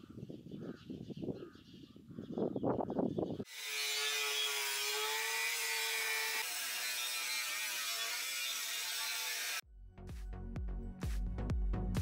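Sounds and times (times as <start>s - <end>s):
angle grinder cutting steel: 3.5s - 9.6s.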